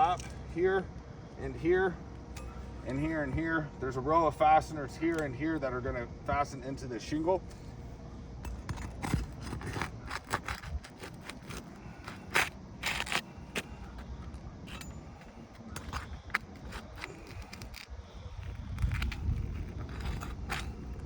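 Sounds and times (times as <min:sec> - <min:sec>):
pry bar scraping roof shingles: 0:08.5 - 0:21.0.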